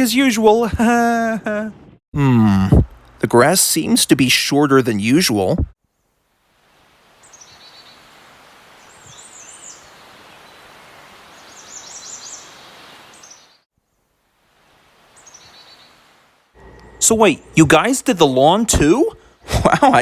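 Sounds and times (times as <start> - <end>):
steady background hiss: 2.8 - 20.0
small birds chirping: 8.8 - 10.7, 11.3 - 13.6, 15.2 - 16.0.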